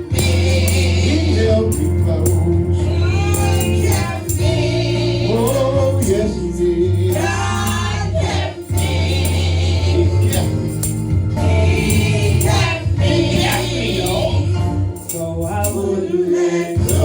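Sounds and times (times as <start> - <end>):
choir singing: 0.0 - 14.8, 15.5 - 17.0
heavy steady bass: 0.0 - 15.8
percussion strikes: 0.0 - 17.0.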